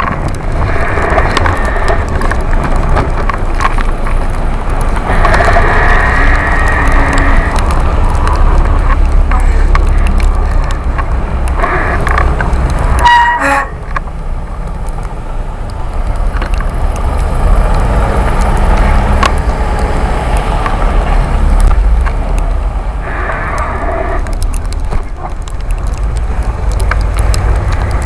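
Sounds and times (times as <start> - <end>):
wind buffeting microphone: 0.0 - 13.1
tyres on snow: 0.0 - 28.0
short horn toot: 13.0 - 13.8.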